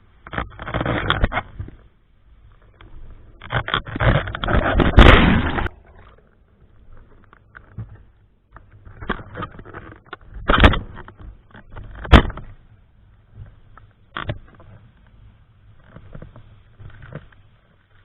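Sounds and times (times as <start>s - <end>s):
crackling: 0.0s - 18.0s
water splashing: 4.4s - 6.2s.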